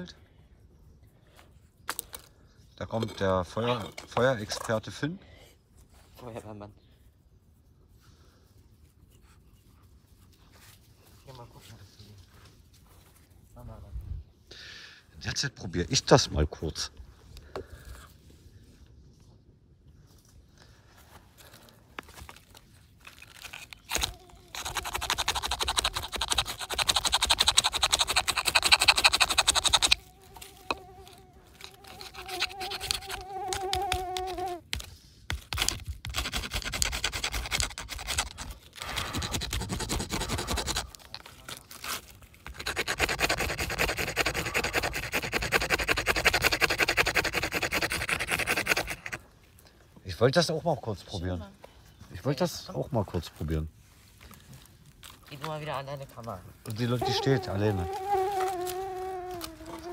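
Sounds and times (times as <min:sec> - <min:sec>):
wood grinding against wood: 0:22.0 - 0:49.3.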